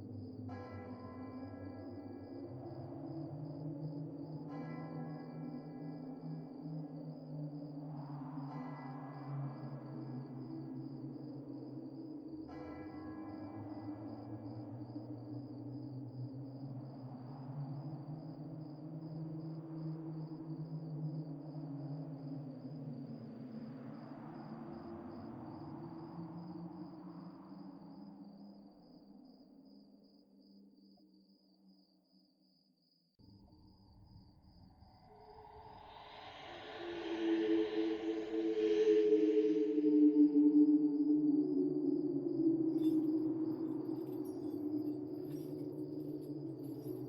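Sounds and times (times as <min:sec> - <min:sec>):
crickets chirping: 0:00.0 - 0:47.0.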